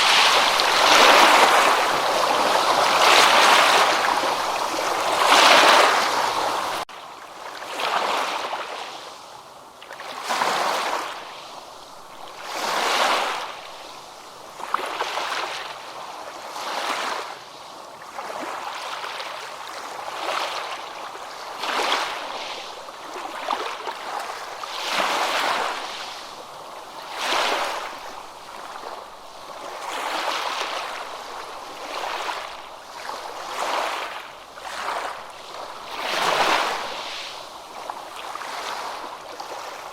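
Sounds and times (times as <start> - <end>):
ocean waves washing in: 0.0 - 6.9, 21.5 - 39.9.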